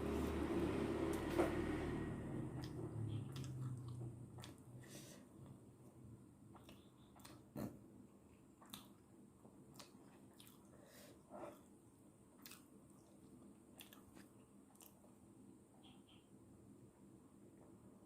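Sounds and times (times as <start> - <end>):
person chewing noodles: 2.4 - 5.0, 6.5 - 7.8, 8.6 - 11.8, 12.4 - 15.1.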